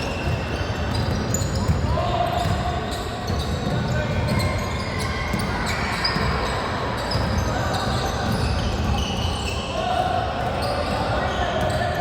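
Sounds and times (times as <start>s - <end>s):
basketball bouncing on court: 0.0s - 9.5s
shoe squeaks and knocks: 0.0s - 9.8s.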